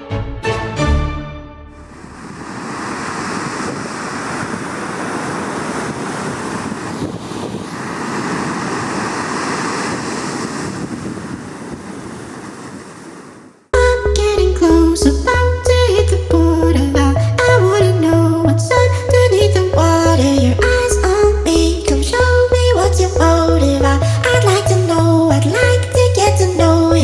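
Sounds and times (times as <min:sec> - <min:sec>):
music: 0:00.0 - 0:01.8, 0:13.8 - 0:27.0
ocean waves breaking: 0:01.8 - 0:13.6.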